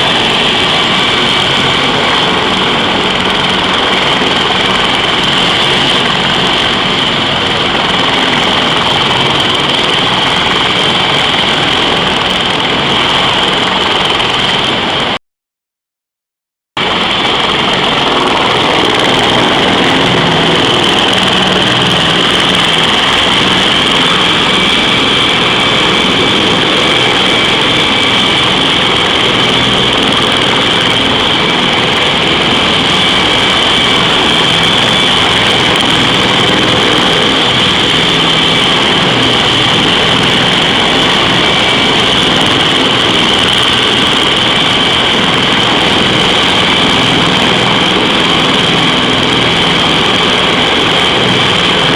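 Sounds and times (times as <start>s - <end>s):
helicopter engine whine: 0.0s - 15.2s, 16.8s - 51.9s
helicopter rotor noise: 0.0s - 15.2s, 16.8s - 51.9s.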